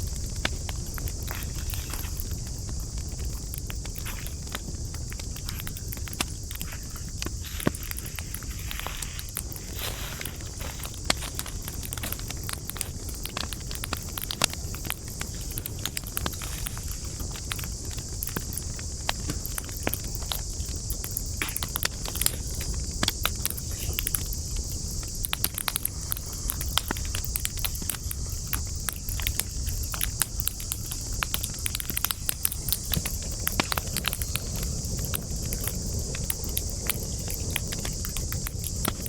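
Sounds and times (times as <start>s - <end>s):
campfire crackling: 0.0s - 39.0s.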